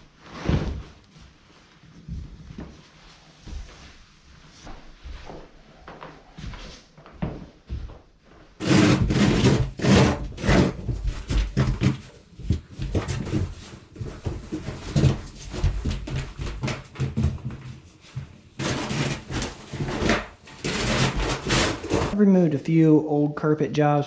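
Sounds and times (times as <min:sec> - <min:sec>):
carpet tearing: 0:08.6 - 0:13.4, 0:18.6 - 0:22.2
carpet scraping on wood floor: 0:08.6 - 0:22.2.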